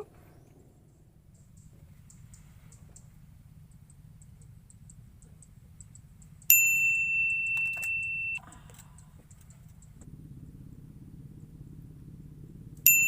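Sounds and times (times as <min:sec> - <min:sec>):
faint low hum: 0:00.0 - 0:13.0
high-pitched electronic beep: 0:07.2 - 0:08.4.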